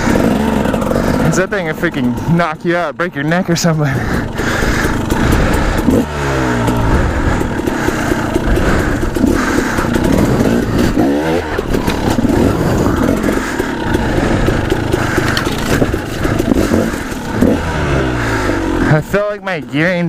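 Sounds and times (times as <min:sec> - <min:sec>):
dirt bike engine revving: 0:00.0 - 0:20.0
bike clattering over rocks: 0:14.7 - 0:17.5.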